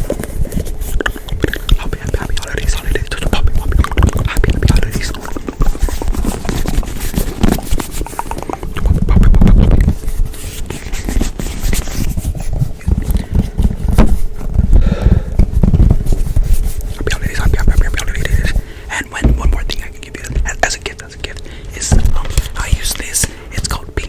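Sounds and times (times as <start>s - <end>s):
hands tapping and scratching: 0.0s - 14.8s, 15.4s - 24.0s
low rumbling: 13.2s - 22.8s.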